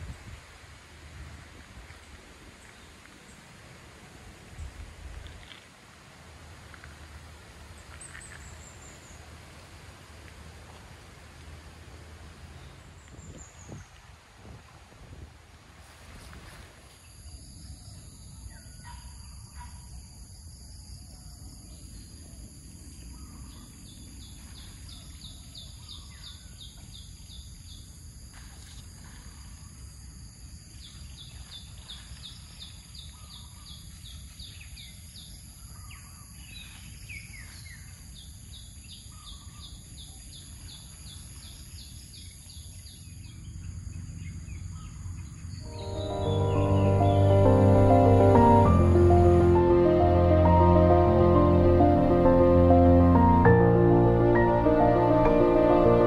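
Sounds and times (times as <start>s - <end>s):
high-pitched drone: 45.7s - 56.0s
low rushing background noise: 45.7s - 56.0s.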